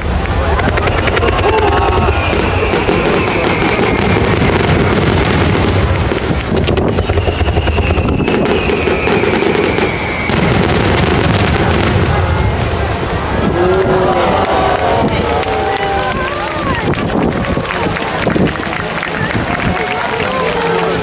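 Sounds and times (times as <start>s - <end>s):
fireworks booming and crackling: 0.0s - 21.0s
falling firework whistle: 0.6s - 6.0s, 6.6s - 12.6s.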